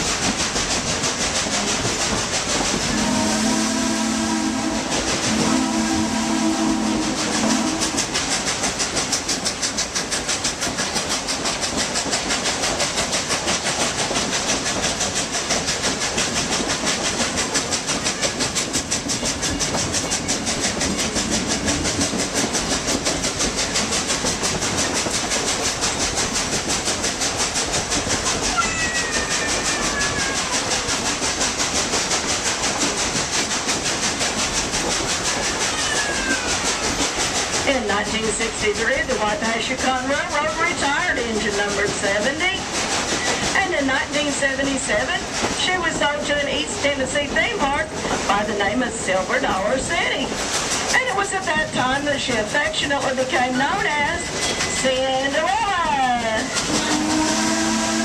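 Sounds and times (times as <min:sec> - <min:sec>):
train rhythmic clatter and hiss: 0:00.0 - 0:58.0
steam locomotive whistle: 0:02.8 - 0:08.2, 0:56.6 - 0:58.0.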